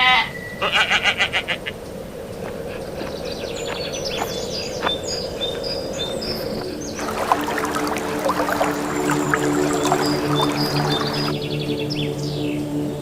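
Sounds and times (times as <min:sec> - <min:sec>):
small birds chirping: 0:01.9 - 0:12.5
sustained music tones: 0:06.6 - 0:13.0.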